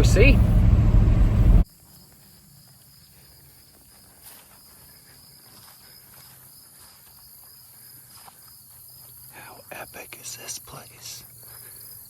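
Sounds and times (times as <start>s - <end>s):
low vehicle rumble: 0.0s - 1.6s
insects chirring: 1.6s - 12.0s.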